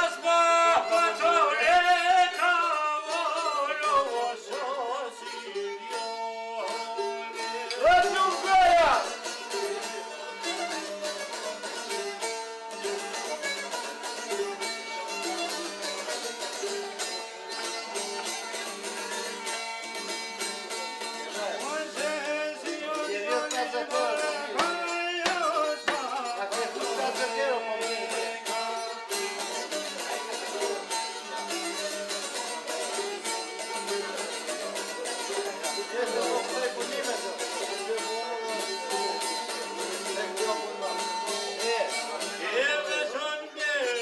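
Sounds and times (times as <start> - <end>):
plucked string folk music: 0.0 - 44.0
person singing: 21.6 - 29.3.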